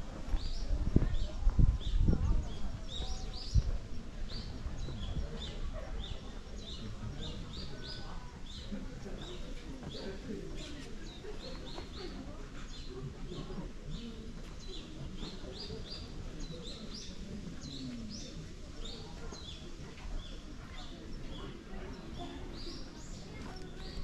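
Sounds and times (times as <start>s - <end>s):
small birds chirping: 0.3s - 24.0s.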